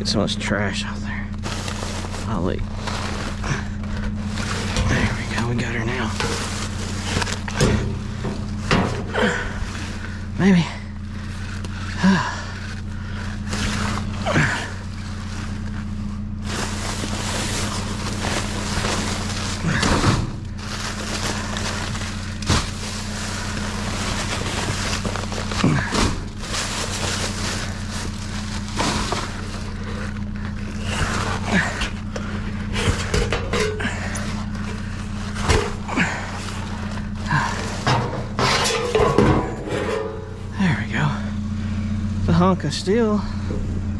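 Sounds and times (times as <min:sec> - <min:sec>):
steady low hum: 0:00.0 - 0:43.9
rustling: 0:01.3 - 0:40.6
scrap knocking in metal dumpster: 0:06.1 - 0:09.2, 0:37.7 - 0:40.5.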